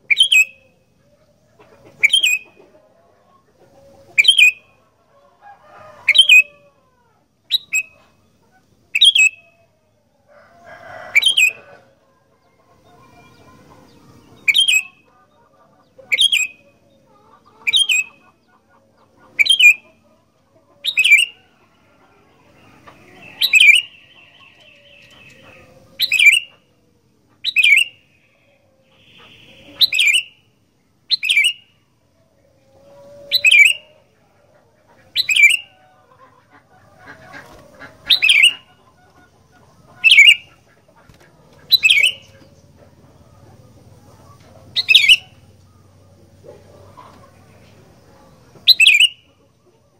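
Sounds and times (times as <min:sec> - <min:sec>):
bird chattering: 0:00.0 - 0:00.7, 0:01.8 - 0:02.6, 0:04.1 - 0:04.8, 0:07.5 - 0:08.2, 0:08.9 - 0:09.5, 0:12.9 - 0:20.0, 0:20.8 - 0:21.4, 0:22.8 - 0:26.7, 0:27.4 - 0:28.2, 0:28.9 - 0:30.5, 0:31.1 - 0:31.7, 0:35.0 - 0:42.8, 0:44.6 - 0:45.5, 0:48.6 - 0:49.3
bird calling in sharp notes: 0:00.1 - 0:00.7, 0:09.0 - 0:09.4, 0:14.4 - 0:15.0, 0:23.2 - 0:26.6, 0:27.4 - 0:28.2, 0:28.9 - 0:30.4, 0:31.1 - 0:31.7, 0:40.0 - 0:40.6, 0:41.7 - 0:42.3, 0:44.8 - 0:45.3, 0:48.7 - 0:49.3.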